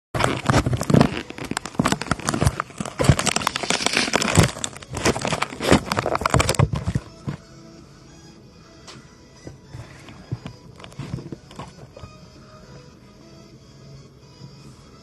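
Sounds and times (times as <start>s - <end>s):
plastic wrapping crinkling: 0.2s - 7.4s, 9.8s - 12.1s.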